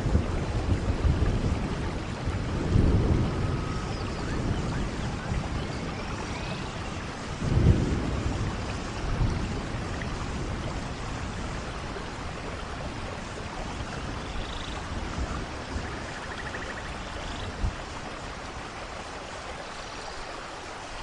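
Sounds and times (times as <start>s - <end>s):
thunder rumbling: 0.0s - 19.0s
steady rain falling: 0.0s - 21.0s.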